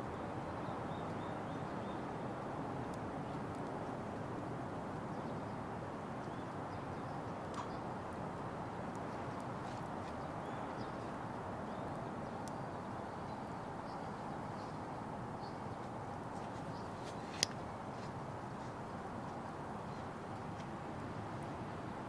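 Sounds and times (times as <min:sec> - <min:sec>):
fire crackling: 0:02.8 - 0:05.1, 0:11.8 - 0:12.9.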